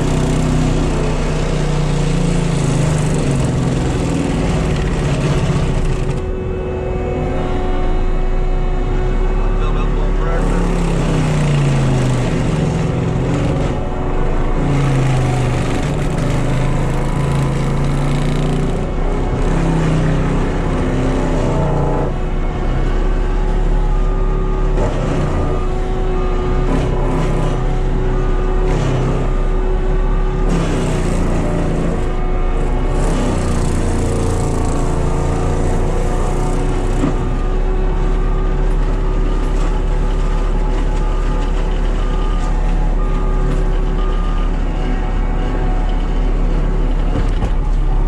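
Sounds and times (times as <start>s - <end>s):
diesel engine running hard: 0.0s - 48.0s.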